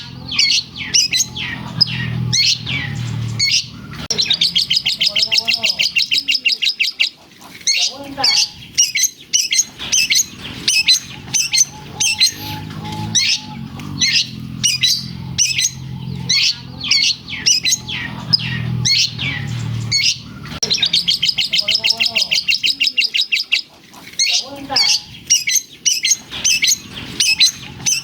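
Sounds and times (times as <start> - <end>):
rapid bird trill: 0.0 - 28.0
low steady hum: 8.1 - 22.8
bird singing chips and whistles: 8.7 - 23.6, 25.3 - 28.0.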